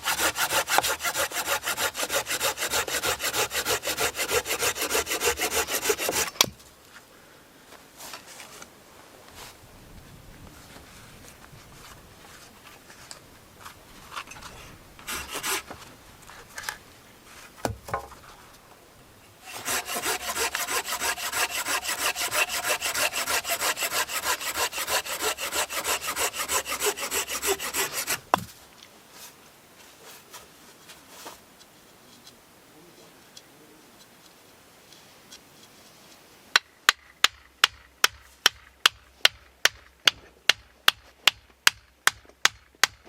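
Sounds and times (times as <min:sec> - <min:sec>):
saw cutting through wood: 0:00.0 - 0:06.5, 0:15.0 - 0:15.8, 0:19.4 - 0:28.4
knocks and handling noises: 0:11.8 - 0:18.6.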